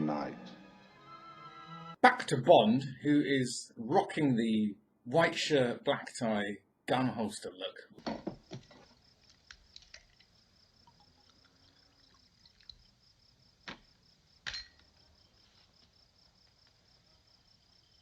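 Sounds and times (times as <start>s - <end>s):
crickets chirping: 7.9s - 18.0s.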